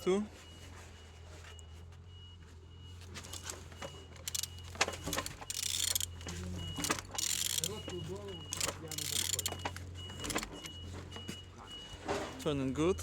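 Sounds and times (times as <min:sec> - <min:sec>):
faint high beep: 0:00.0 - 0:13.0
metallic clicks and rattling: 0:03.2 - 0:10.7.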